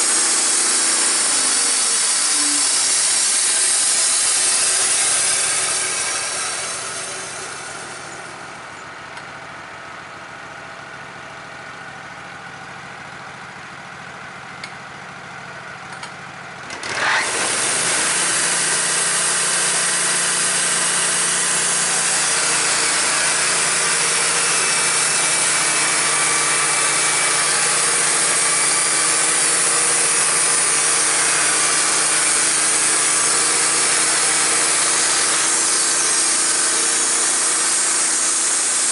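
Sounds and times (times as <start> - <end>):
blade sawing through timber: 0.0 - 8.6, 16.8 - 38.9
sawmill engine idling and revving: 0.0 - 38.9.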